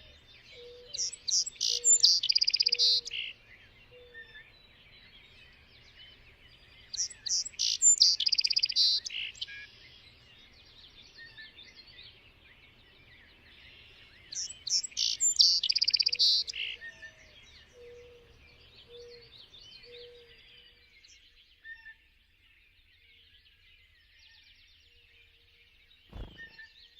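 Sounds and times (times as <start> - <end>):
bird singing with fast trill: 0.0 - 26.9
many faint birds chirping: 0.0 - 26.9
low short bird notes: 26.1 - 26.8.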